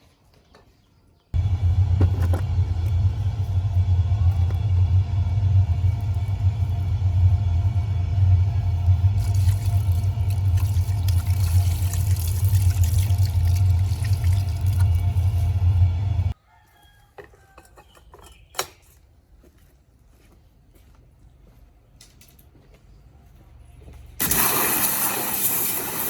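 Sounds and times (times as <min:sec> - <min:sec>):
machine hum with hiss: 0:01.4 - 0:16.4.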